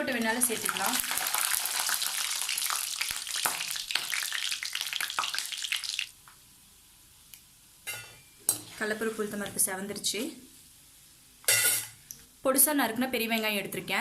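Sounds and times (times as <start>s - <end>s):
seeds frying in hot oil: 0.0s - 6.4s.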